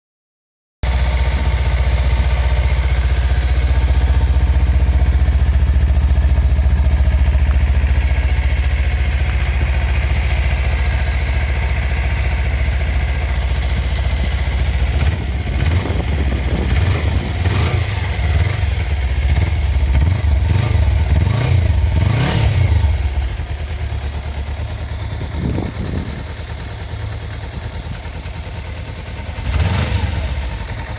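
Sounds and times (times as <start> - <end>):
motorcycle engine idling and revving: 0.8 - 30.9.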